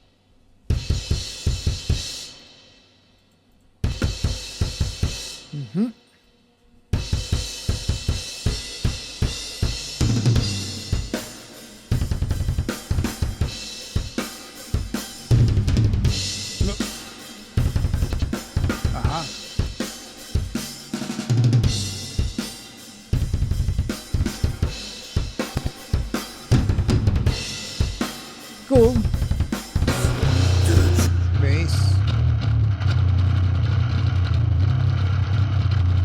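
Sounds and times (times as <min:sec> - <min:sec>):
snare drum: 0:23.4 - 0:31.1
cymbals: 0:27.3 - 0:31.4
kick drum: 0:28.8 - 0:31.0.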